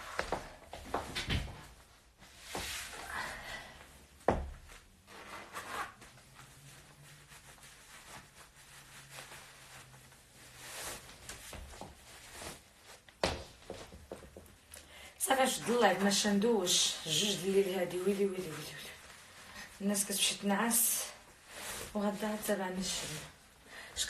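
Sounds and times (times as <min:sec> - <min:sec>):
rustling and handling noises: 0:04.0 - 0:14.7, 0:15.3 - 0:23.6.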